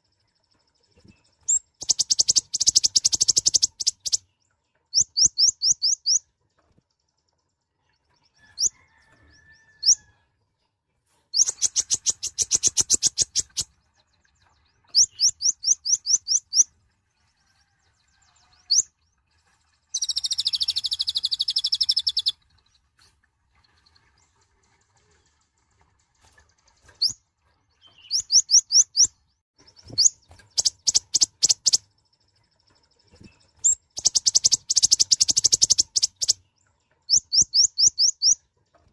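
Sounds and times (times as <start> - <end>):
buzzy bird trill: 1.0 - 4.2, 4.9 - 6.2, 11.4 - 13.7, 14.9 - 16.7, 20.0 - 22.4, 29.8 - 31.8, 33.1 - 36.4, 37.1 - 38.4
sunbird high-pitched chirps: 1.0 - 6.3, 8.5 - 8.7, 11.3 - 13.8, 14.7 - 16.7, 18.5 - 18.9, 19.9 - 22.4, 27.8 - 31.9, 33.0 - 38.4.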